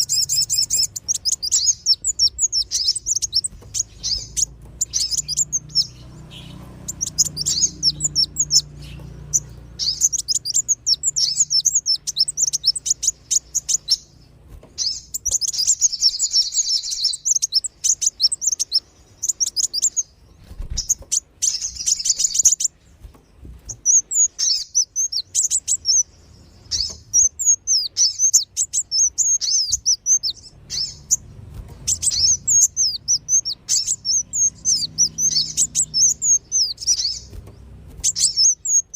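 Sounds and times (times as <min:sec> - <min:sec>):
birds twittering: 0:00.0 - 0:38.9.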